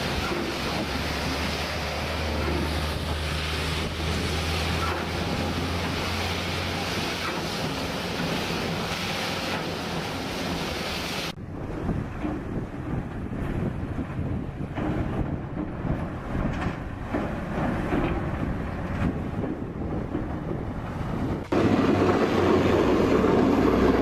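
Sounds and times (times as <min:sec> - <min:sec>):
rough uneven machine sound: 0:00.0 - 0:10.9
loud rushing hiss: 0:00.0 - 0:11.4
snow removal machine engine drone: 0:00.0 - 0:11.4, 0:21.3 - 0:24.0.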